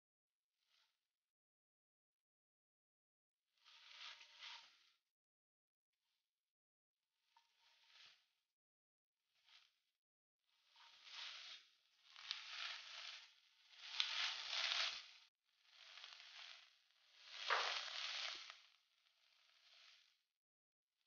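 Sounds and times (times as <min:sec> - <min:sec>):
food sizzling in oil: 0:13.8 - 0:15.2, 0:15.8 - 0:16.6, 0:17.2 - 0:18.6.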